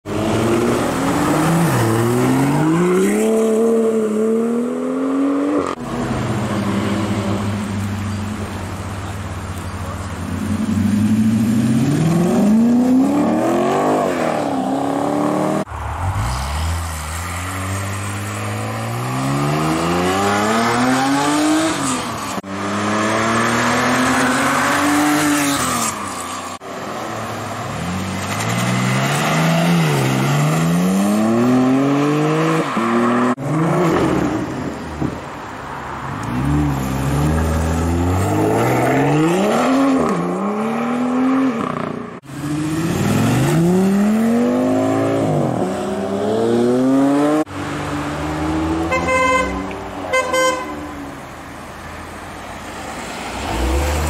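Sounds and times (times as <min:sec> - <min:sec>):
sports car engines revving: 0:00.0 - 0:25.9, 0:36.1 - 0:51.0, 0:53.2 - 0:54.0.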